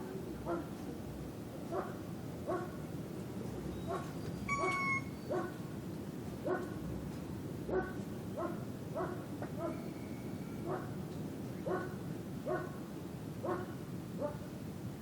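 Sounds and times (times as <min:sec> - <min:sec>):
village night ambience: 0:00.0 - 0:15.0
dog barking: 0:00.4 - 0:00.7, 0:01.7 - 0:02.8, 0:03.9 - 0:05.6, 0:06.4 - 0:06.7, 0:07.7 - 0:09.8, 0:10.6 - 0:10.9, 0:11.6 - 0:12.8, 0:13.4 - 0:14.4.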